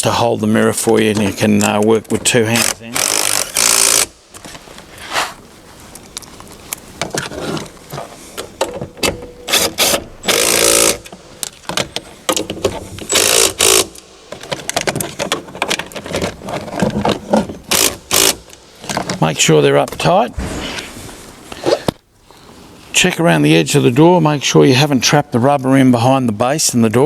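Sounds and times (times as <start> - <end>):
short scraping bursts: 9.5 - 11.2.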